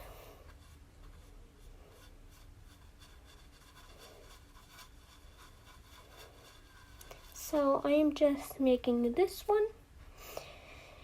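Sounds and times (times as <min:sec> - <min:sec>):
paintbrush strokes on wood: 0:00.0 - 0:09.0
low room hum: 0:00.0 - 0:11.0.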